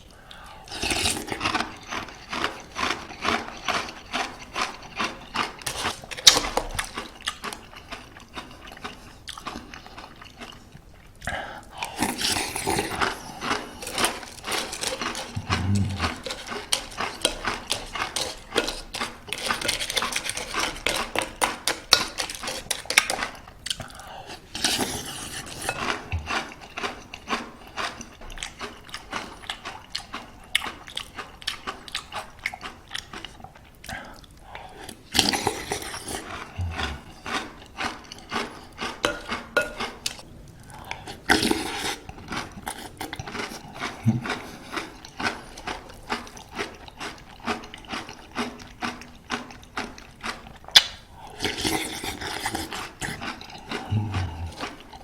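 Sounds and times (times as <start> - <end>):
granola crunching and chewing: 0.7 - 55.0
spoon clinking against bowl: 39.1 - 39.9.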